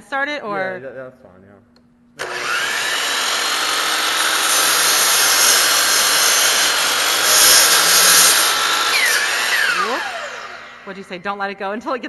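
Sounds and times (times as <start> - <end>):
electric miter saw cutting wood: 2.2 - 11.0.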